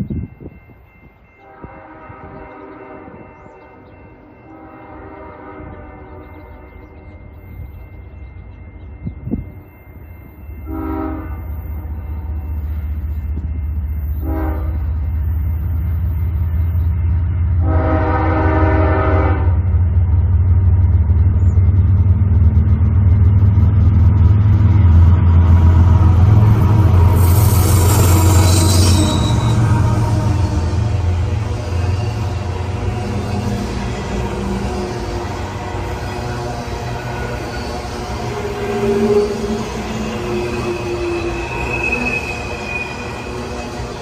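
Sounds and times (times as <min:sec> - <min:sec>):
locomotive horn blasts: 0:01.4 - 0:03.3, 0:04.5 - 0:06.6, 0:10.6 - 0:11.6, 0:14.2 - 0:15.0, 0:17.6 - 0:19.7, 0:25.9 - 0:43.1
locomotive engine rumble: 0:11.8 - 0:44.0.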